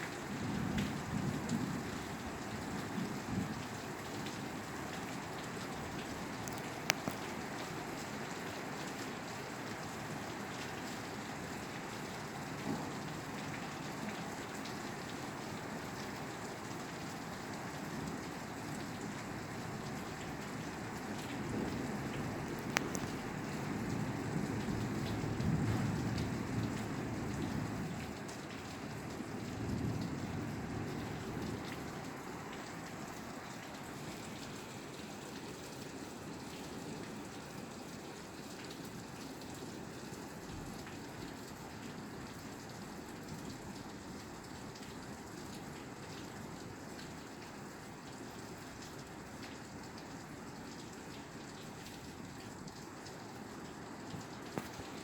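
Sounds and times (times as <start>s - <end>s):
rain on a roof: 0.0s - 55.0s.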